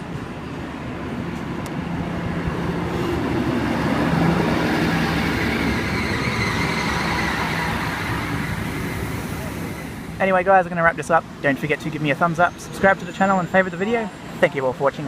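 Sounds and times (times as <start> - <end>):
train wheel noise: 0.0 - 14.5
diesel engine hum: 0.0 - 15.0
high-pitched whine: 3.9 - 11.1, 11.8 - 15.0.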